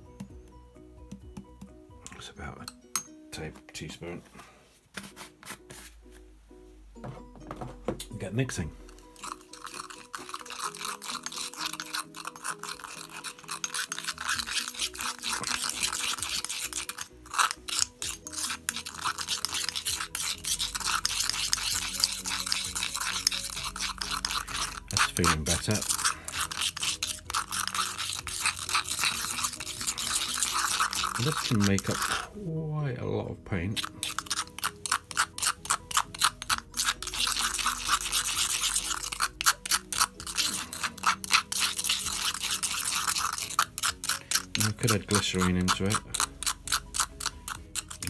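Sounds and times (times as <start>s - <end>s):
spoon scraping stone mortar: 8.4s - 32.4s, 33.6s - 48.0s.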